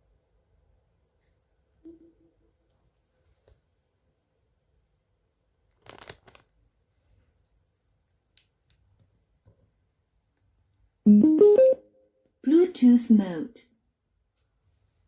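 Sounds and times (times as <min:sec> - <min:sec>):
speaker rising chime: 0:11.1 - 0:11.8.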